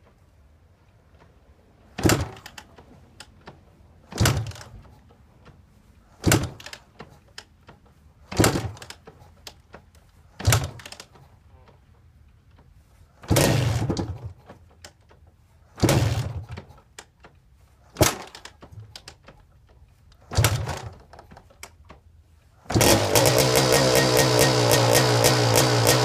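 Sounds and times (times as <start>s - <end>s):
kick-start lever thuds: 2.0s - 2.7s, 4.1s - 4.8s, 8.3s - 9.0s, 10.4s - 11.0s.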